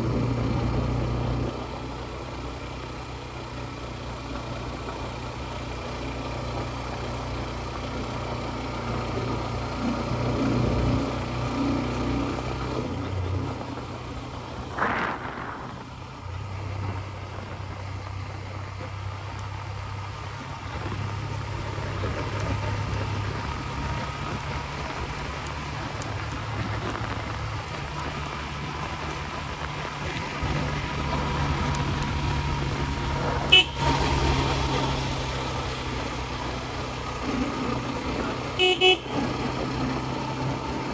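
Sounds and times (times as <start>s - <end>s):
scooter engine running: 0.0s - 40.9s
vehicle horn tooting: 33.5s - 34.6s, 38.5s - 39.8s.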